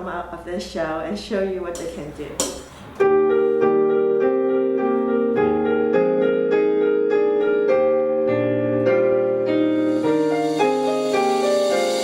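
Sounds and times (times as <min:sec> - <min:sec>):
piano chords: 0:02.4 - 0:12.0.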